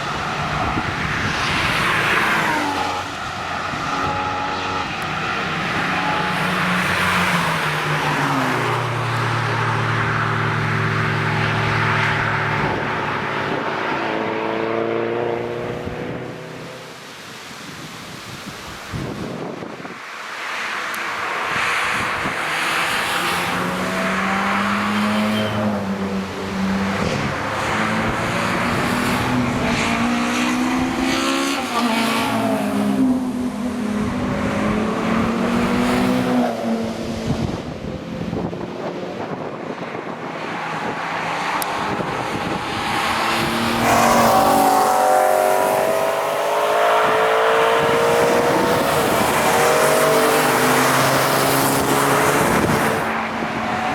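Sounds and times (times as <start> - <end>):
cars driving past: 0.0 - 18.4, 19.0 - 53.9.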